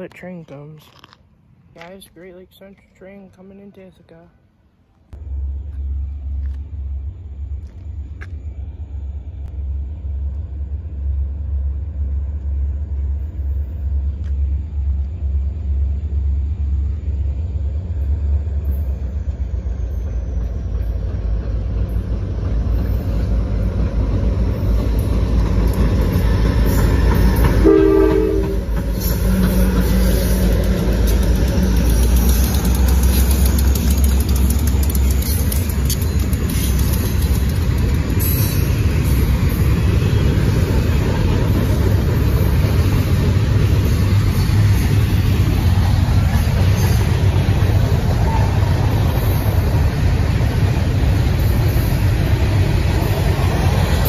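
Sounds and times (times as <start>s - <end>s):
diesel locomotive rumble: 5.1s - 54.0s
wheel-on-rail noise: 10.2s - 54.0s
train horn toot: 27.6s - 28.8s.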